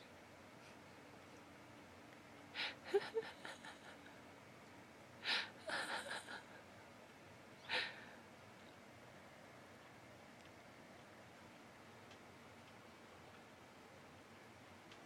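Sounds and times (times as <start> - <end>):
stifled laughter: 2.7 - 4.2, 5.6 - 6.6.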